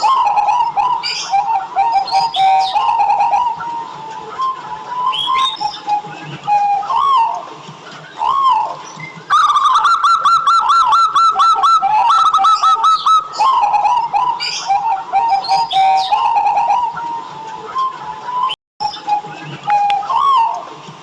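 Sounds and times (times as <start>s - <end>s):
doves cooing: 0.0s - 20.9s.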